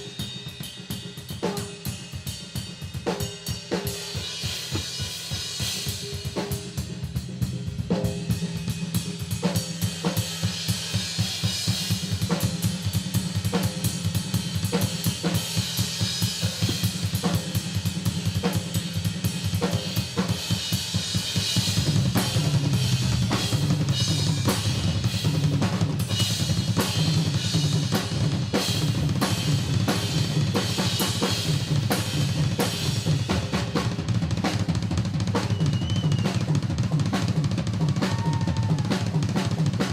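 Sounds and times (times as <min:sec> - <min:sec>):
snare drum: 0:03.8 - 0:06.6, 0:14.7 - 0:17.6, 0:33.3 - 0:39.9.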